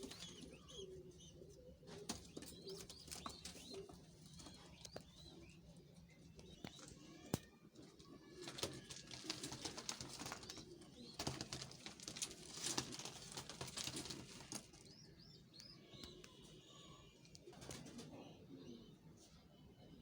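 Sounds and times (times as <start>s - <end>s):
pigeons cooing: 0.0s - 15.1s, 16.1s - 19.1s
wings flapping and rustling: 8.0s - 15.0s.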